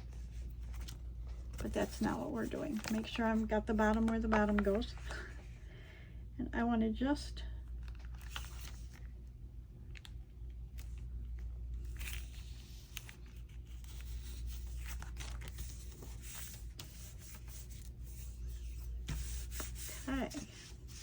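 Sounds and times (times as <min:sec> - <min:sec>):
paper rustling and scraping: 0:00.0 - 0:05.4, 0:07.9 - 0:09.1, 0:11.8 - 0:21.0.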